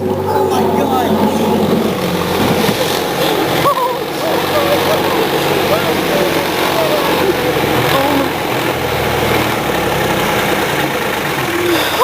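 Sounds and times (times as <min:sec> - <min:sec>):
backhoe engine running: 0:00.0 - 0:12.0.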